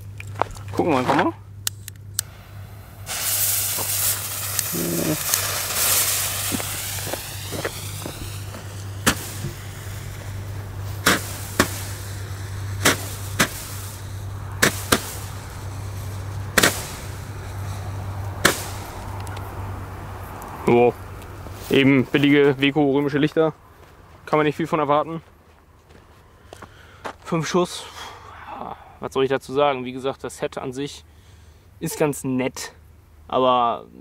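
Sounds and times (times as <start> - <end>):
fireworks popping: 2.2 - 19.6
roman candle hissing: 2.2 - 20.2.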